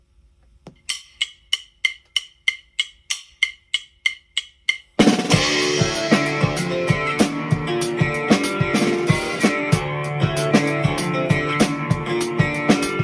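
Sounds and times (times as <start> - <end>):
count-in clicks: 0.8 - 8.6
rock band playing: 5.0 - 13.0.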